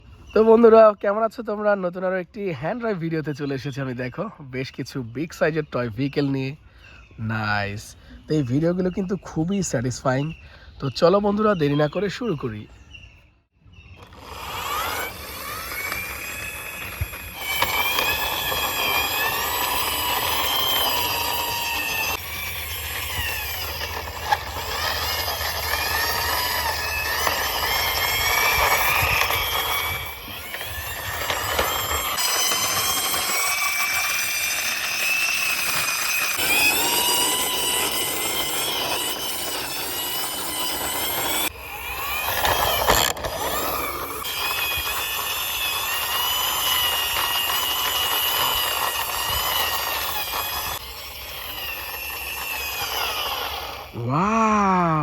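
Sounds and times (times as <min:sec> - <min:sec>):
toy vehicle running noise: 0:07.3 - 0:12.6, 0:13.8 - 0:55.0
wavering high-pitched tones: 0:14.0 - 0:55.0.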